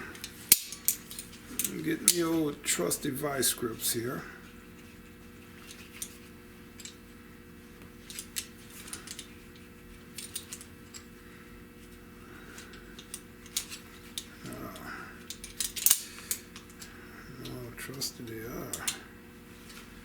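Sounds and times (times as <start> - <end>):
locking pliers clicking on metal: 18.7 - 19.0.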